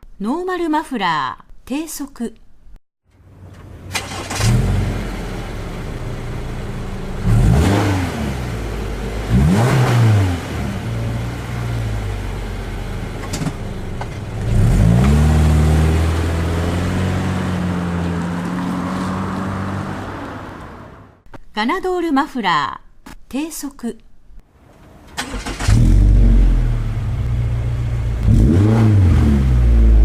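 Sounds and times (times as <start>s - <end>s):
car engine idling and revving: 3.2s - 21.2s, 24.8s - 30.0s.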